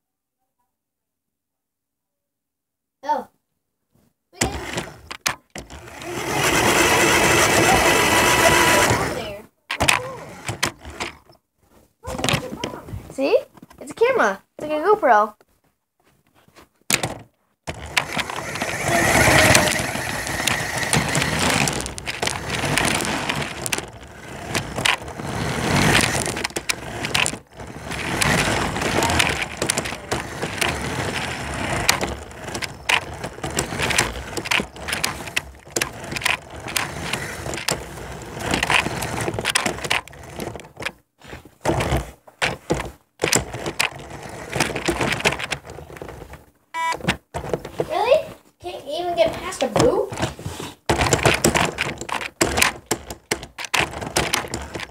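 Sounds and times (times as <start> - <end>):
toy car knocking into obstacles: 4.4 - 11.4, 16.9 - 47.9, 49.6 - 54.9
toy car rattling and clattering: 4.4 - 11.4, 16.9 - 48.3, 48.9 - 54.9.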